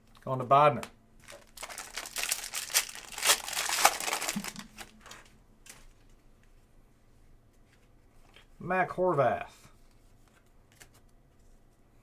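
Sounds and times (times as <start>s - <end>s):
foil wrapper tearing and crinkling: 1.2s - 5.2s.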